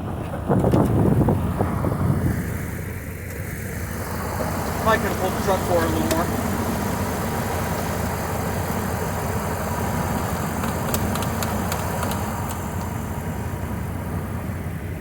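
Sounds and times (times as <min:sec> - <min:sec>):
car engine idling: 0:00.0 - 0:15.0
sharp clicks: 0:10.6 - 0:12.9.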